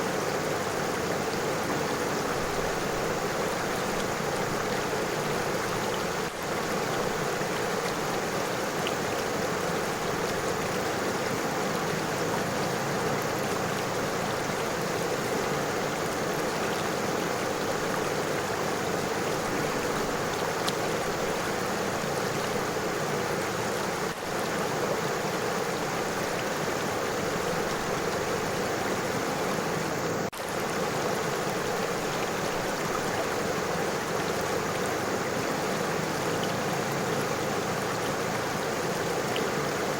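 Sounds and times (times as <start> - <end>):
river water over stones: 0.0 - 39.9.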